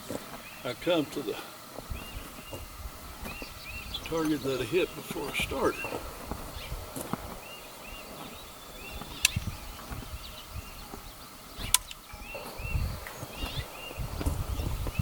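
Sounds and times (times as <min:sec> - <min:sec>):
bird chirping: 0:00.0 - 0:15.0
low rumbling noise: 0:00.7 - 0:15.0
sharp clicks: 0:09.2 - 0:09.5, 0:11.6 - 0:12.1.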